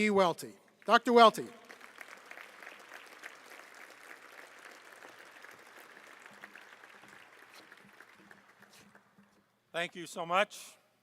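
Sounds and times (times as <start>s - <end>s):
faint audience applause: 0.8s - 9.5s.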